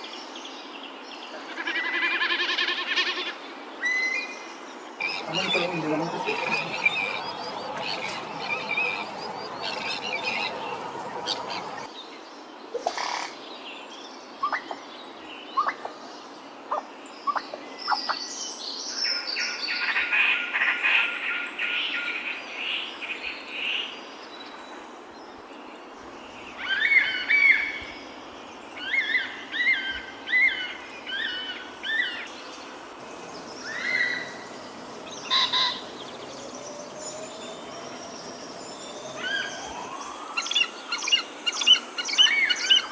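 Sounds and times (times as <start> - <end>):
background hiss: 4.4 - 11.9, 25.5 - 42.9
bird chirps: 5.0 - 11.9, 26.3 - 42.9
dry rapid bird rattle: 5.1 - 11.9.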